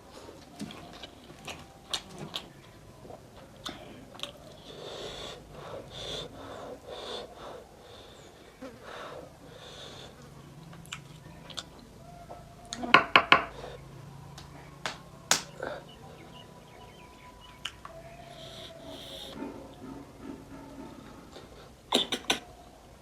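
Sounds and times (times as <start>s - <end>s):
loud smacking clicks: 14.3s - 15.6s, 21.9s - 22.5s
airy sucking draws: 18.0s - 19.4s.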